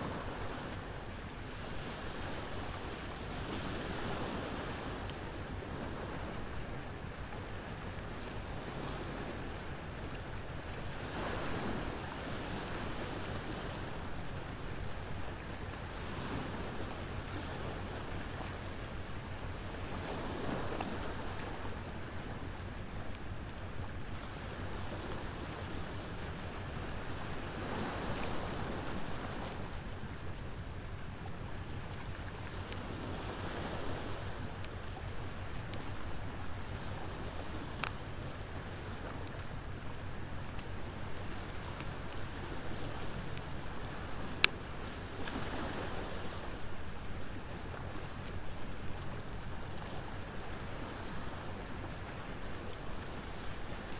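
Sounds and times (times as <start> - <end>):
ocean waves washing ashore: 0.0 - 53.9.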